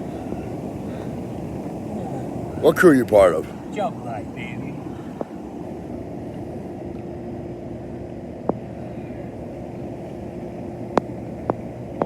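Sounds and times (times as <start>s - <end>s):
low mechanical drone: 0.0s - 12.0s.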